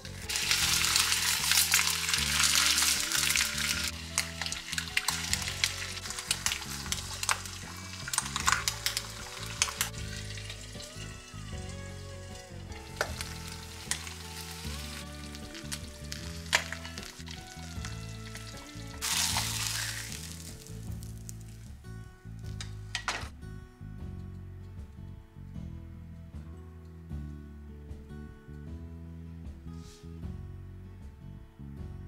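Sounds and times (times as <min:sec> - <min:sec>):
ham and eggs sizzling in a pan: 0:00.0 - 0:21.7
soft background music: 0:00.0 - 0:32.0.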